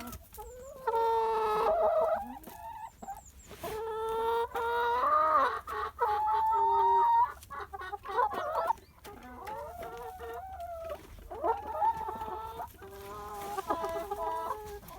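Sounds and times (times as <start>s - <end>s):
chickens clucking: 0.0s - 14.9s.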